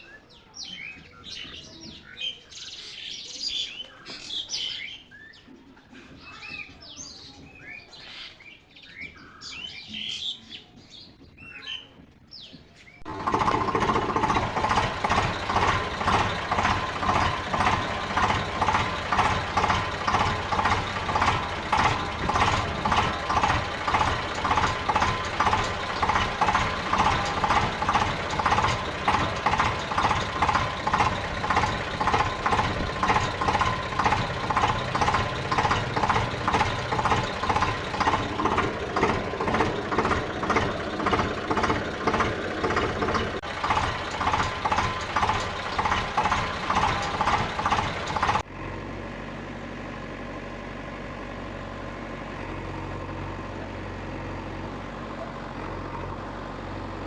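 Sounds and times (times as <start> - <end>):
tractor engine idling: 13.0 - 57.0.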